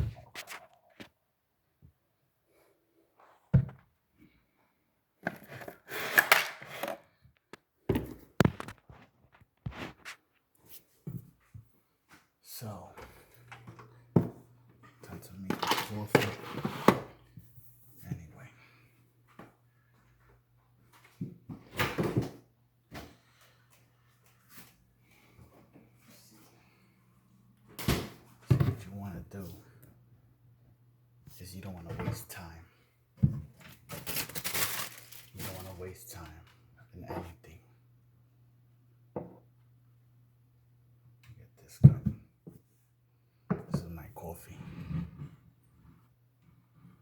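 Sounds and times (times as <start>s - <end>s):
kitchen knocks and clunks: 3.5s - 3.9s, 27.8s - 28.8s.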